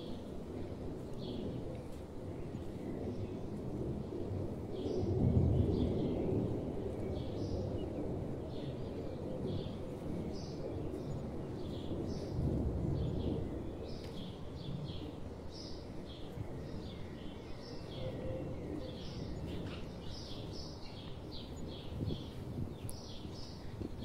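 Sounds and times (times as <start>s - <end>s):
small birds chirping: 8.6s - 24.0s.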